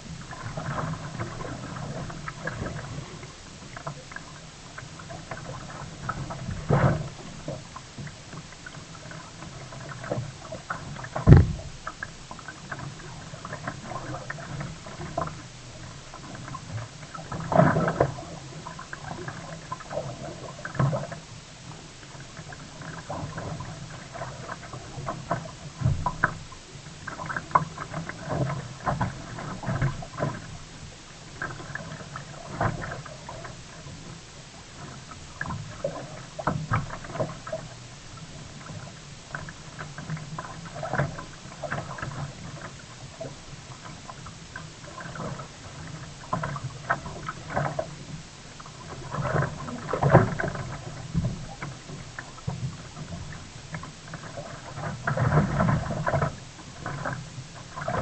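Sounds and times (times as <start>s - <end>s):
water splashing around kayak: 0.0s - 58.0s
sharp thump: 11.2s - 11.8s.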